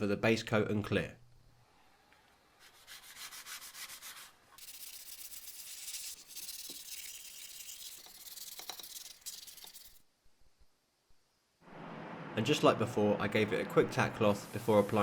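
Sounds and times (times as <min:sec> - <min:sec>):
sandpaper sanding metal: 0:02.6 - 0:10.0.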